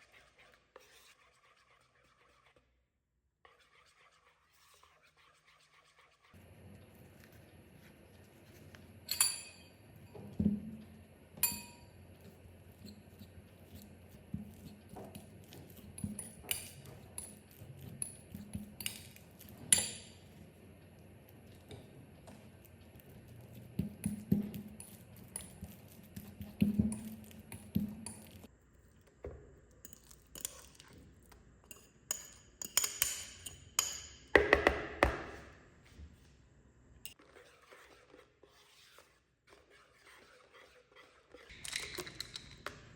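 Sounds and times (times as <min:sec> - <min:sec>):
dishes and utensils clinking: 0:09.0 - 0:12.0, 0:12.8 - 0:20.4, 0:41.5 - 0:42.9.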